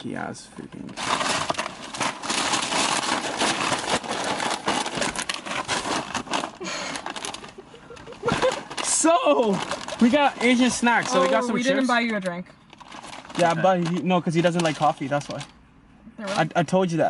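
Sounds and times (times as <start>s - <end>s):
plastic packaging crinkling: 1.0s - 11.5s, 12.7s - 15.5s.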